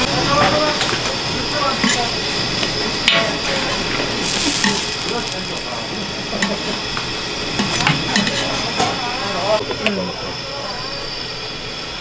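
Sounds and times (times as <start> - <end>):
food frying sizzle: 0.9 - 9.0.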